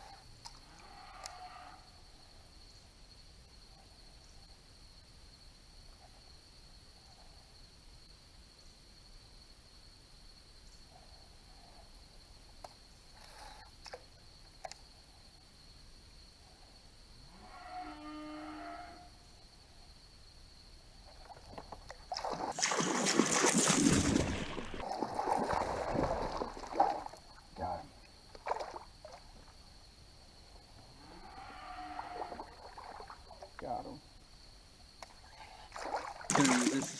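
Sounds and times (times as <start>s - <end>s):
insect drone: 0.0s - 36.9s
water sloshing around a kayak: 21.2s - 27.4s, 28.2s - 29.6s, 32.5s - 33.5s, 35.7s - 36.9s.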